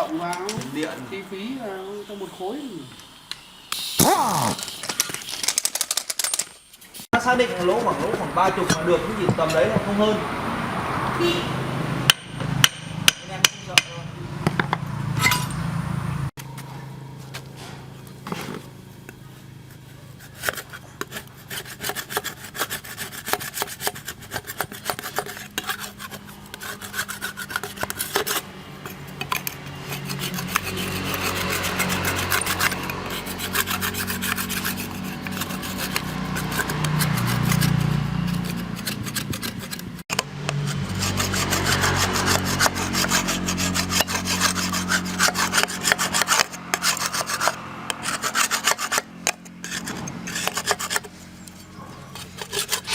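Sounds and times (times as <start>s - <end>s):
hand tool scraping hard surface: 4.0s - 9.8s, 17.6s - 52.9s.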